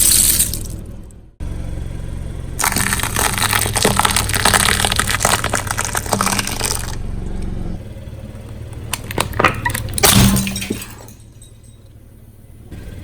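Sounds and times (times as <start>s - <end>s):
car engine humming: 0.0s - 13.0s
tyre crushing brittle objects: 2.6s - 7.0s, 8.7s - 11.2s.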